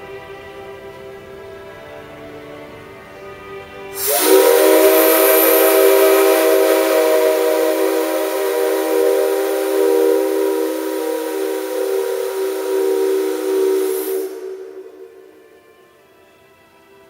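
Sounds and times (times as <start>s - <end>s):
steam locomotive whistle: 4.0s - 16.1s.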